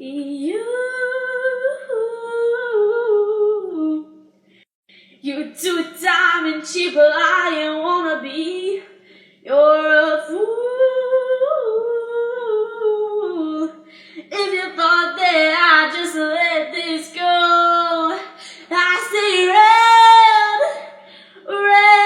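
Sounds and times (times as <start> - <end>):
girl singing unaccompanied: 5.2 - 8.9, 9.5 - 22.0.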